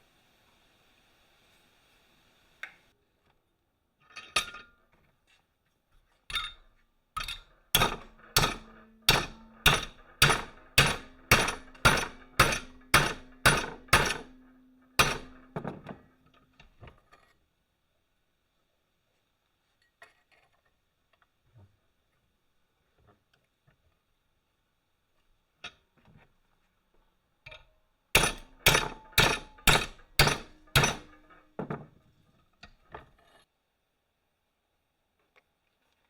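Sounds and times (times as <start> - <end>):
hammer striking steel: 7.2 - 15.8, 28.2 - 31.4
metal ringing: 7.8 - 15.6, 28.2 - 31.6.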